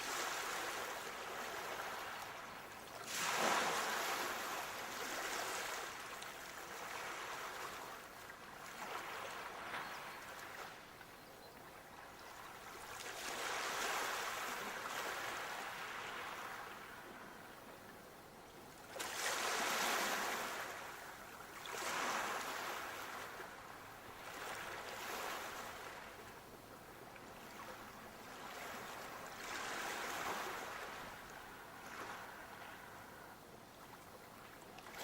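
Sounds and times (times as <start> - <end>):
sea waves breaking on shore: 0.0 - 11.0, 12.2 - 17.6, 18.7 - 35.0.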